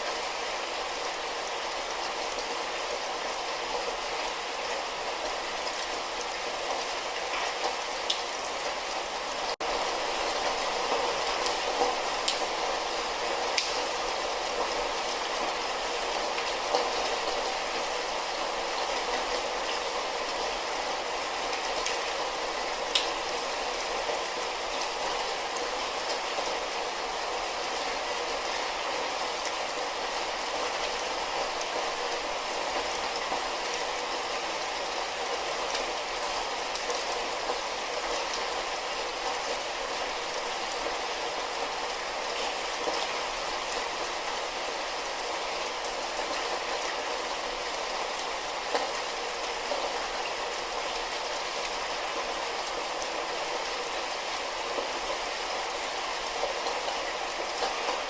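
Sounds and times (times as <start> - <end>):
light rain falling: 0.0 - 58.0
raindrop ticks: 11.4 - 12.5, 13.5 - 13.8, 22.9 - 23.2.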